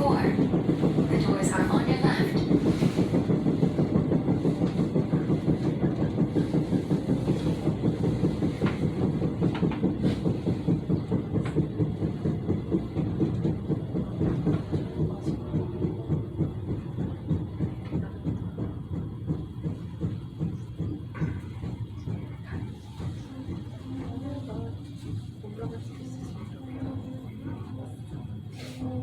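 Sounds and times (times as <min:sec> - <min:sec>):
train running on rails: 0:00.0 - 0:29.0.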